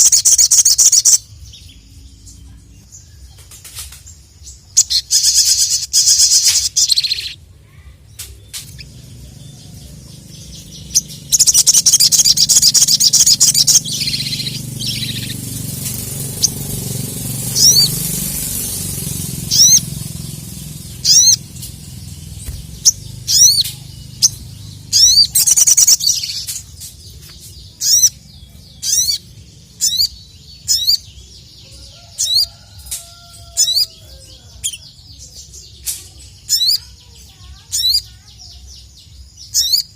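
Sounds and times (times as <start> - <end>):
rapid high bird chattering: 0.0 - 1.3, 4.6 - 7.4, 8.2 - 31.2, 35.7 - 38.6
bird singing: 0.0 - 39.9.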